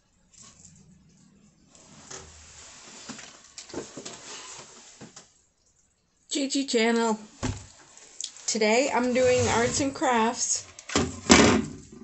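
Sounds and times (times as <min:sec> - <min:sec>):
rustling handling noise: 0:01.7 - 0:05.4, 0:07.3 - 0:10.8.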